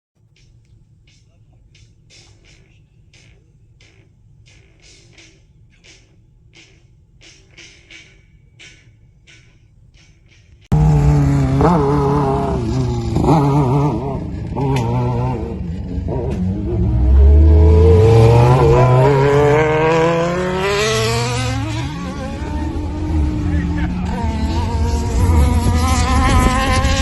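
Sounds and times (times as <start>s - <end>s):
racing engine accelerating: 10.7s - 27.0s.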